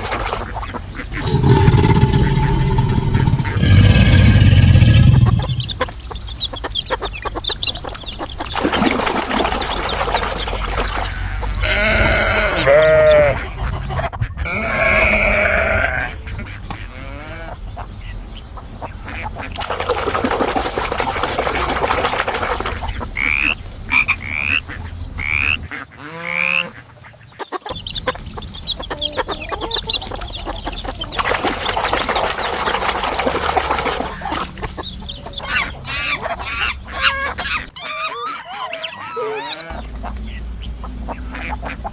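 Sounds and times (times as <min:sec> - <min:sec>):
falling animal call: 0:01.2 - 0:05.8.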